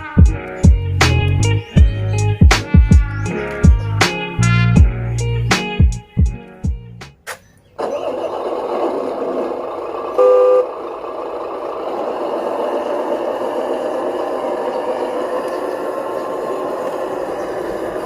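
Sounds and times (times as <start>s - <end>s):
background music: 0.0s - 7.2s
toy truck electric motor whirring: 7.8s - 18.0s.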